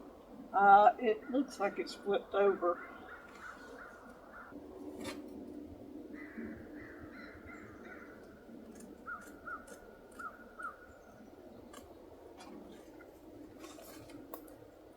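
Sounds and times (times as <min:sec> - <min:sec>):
crows cawing: 0:02.8 - 0:04.6, 0:06.1 - 0:08.3.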